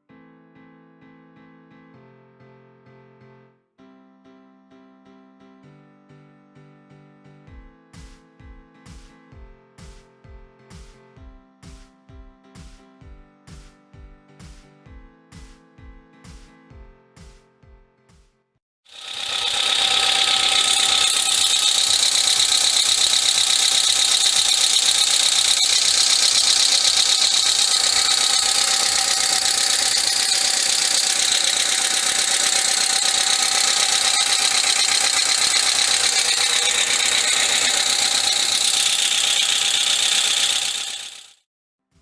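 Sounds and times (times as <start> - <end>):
car engine idling: 19.0 - 41.3.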